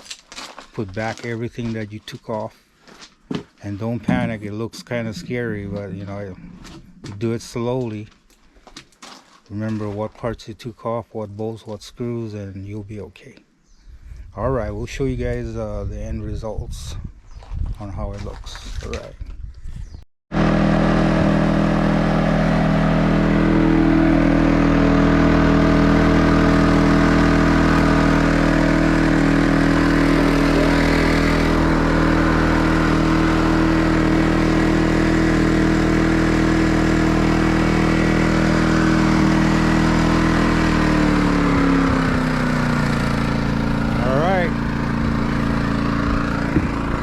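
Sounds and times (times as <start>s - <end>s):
generator running: 3.6s - 8.2s, 20.3s - 47.0s.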